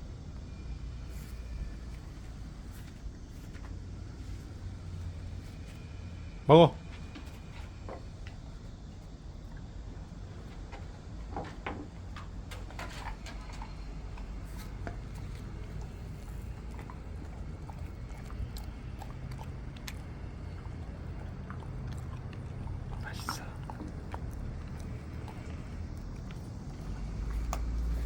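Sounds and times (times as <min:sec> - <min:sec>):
steady low hum: 0:00.0 - 0:28.0
dog chewing a treat: 0:06.8 - 0:28.0.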